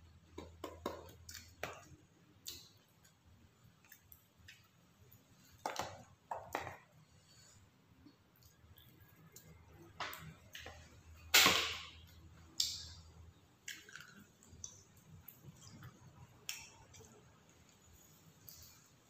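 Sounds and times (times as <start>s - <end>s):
person chewing with mouth clicks: 13.6s - 17.2s.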